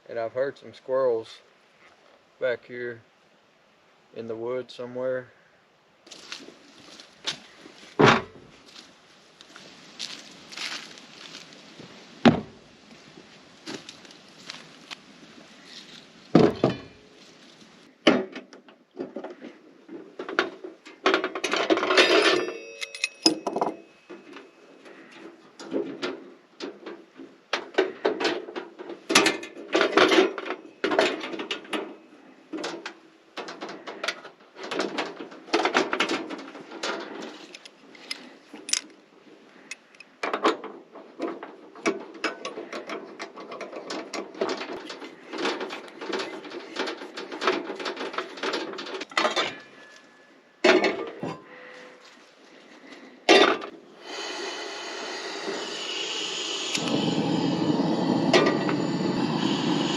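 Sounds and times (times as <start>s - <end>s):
rustling: 6.1s - 18.0s, 51.2s - 54.4s
camp gear clattering: 17.9s - 39.0s, 39.7s - 53.9s.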